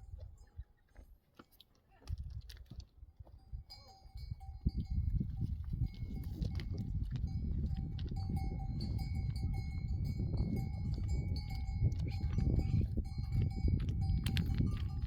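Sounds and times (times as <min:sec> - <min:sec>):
livestock bells ringing: 0:03.4 - 0:15.0.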